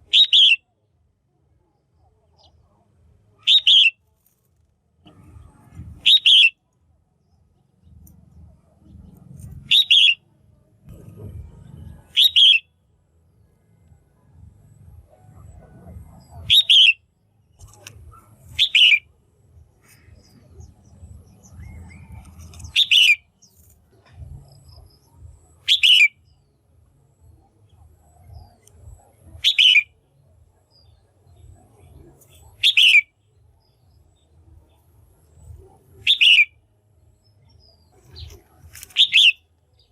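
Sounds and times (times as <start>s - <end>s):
bulbul calling: 0.0s - 0.6s, 3.4s - 4.0s, 5.7s - 6.6s, 8.8s - 10.3s, 10.9s - 12.7s, 15.1s - 26.5s, 27.7s - 30.1s, 30.7s - 33.2s, 35.4s - 39.9s
faint low rumble: 0.8s - 39.9s.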